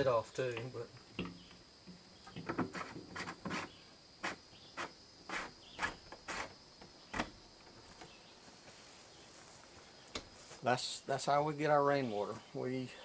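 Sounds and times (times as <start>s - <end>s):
insects trilling: 0.0s - 13.0s
scrapes and knocks: 2.3s - 6.5s.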